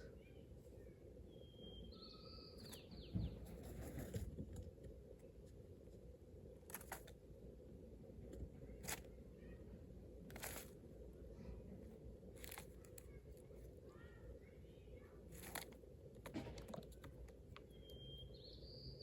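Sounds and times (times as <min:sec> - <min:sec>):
bird whistling call: 0:01.3 - 0:03.1, 0:17.7 - 0:19.0.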